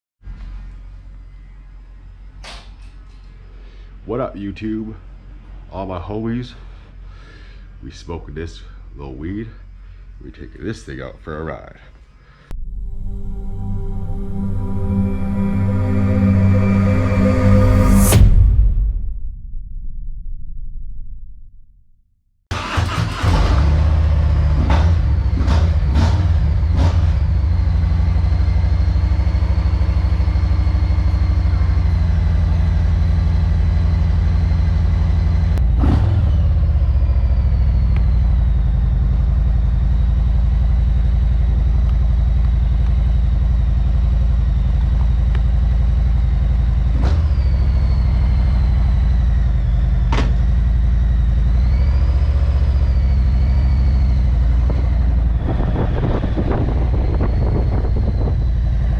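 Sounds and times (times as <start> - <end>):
motorcycle engine running: 23.2 - 58.9.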